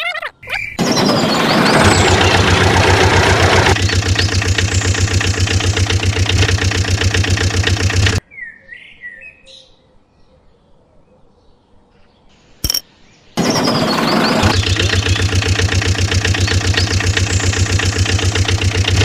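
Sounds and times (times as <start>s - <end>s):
short chirping calls: 0.0s - 2.5s
small engine running: 0.8s - 8.2s, 13.4s - 19.0s.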